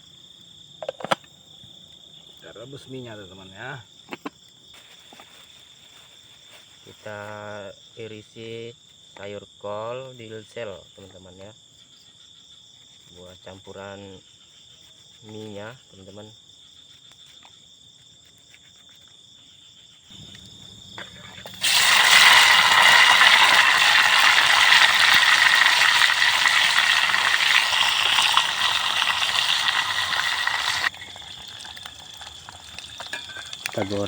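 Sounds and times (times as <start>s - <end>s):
crickets chirping: 0.0s - 34.0s
food sizzling in hot oil: 21.4s - 34.0s.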